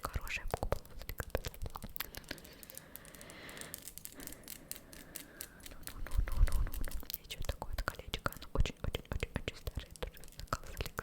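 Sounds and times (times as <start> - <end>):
soft crinkly rustle: 0.0 - 11.0.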